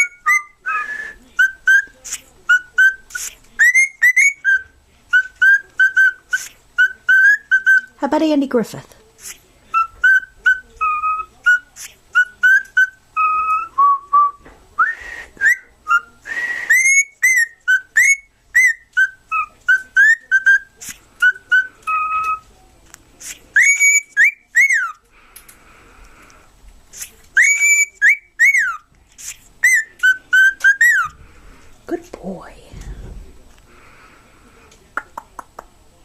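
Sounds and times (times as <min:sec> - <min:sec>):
cockatiel whistling: 0:00.0 - 0:08.0, 0:09.7 - 0:22.5, 0:23.2 - 0:25.0, 0:27.4 - 0:31.2.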